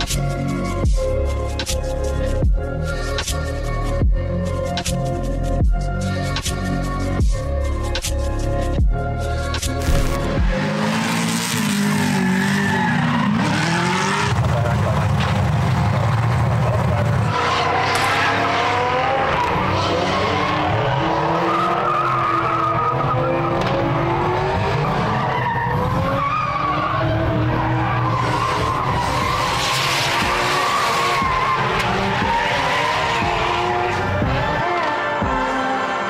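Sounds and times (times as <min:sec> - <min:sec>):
car engines revving: 0:07.7 - 0:36.0
tyres squealing and skidding: 0:10.6 - 0:35.2.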